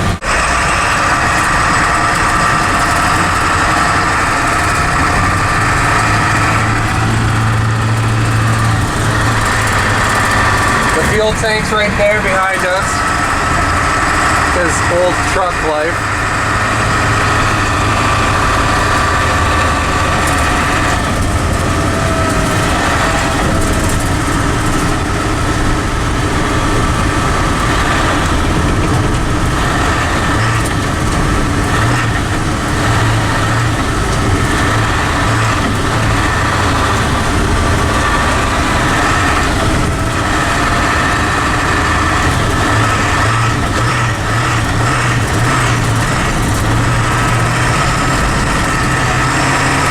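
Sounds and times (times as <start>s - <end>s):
diesel truck engine running: 0.0s - 49.9s.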